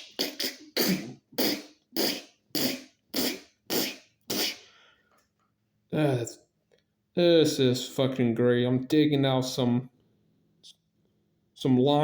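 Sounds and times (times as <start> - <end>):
person making breathy mouth sounds: 0.0 - 4.8.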